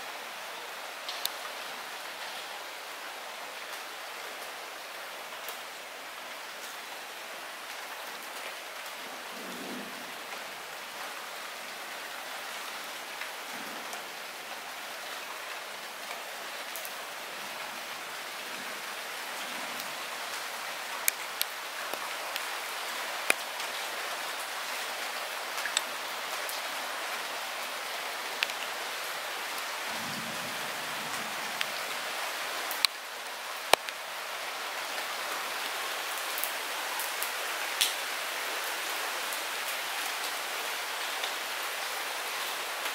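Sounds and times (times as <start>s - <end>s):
light rain falling: 0.0s - 42.9s.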